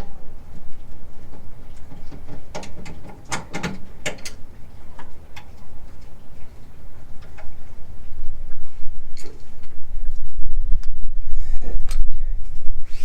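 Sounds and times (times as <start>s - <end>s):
steady low rumble: 0.0s - 13.0s
hand tools clicking on metal: 1.7s - 6.1s.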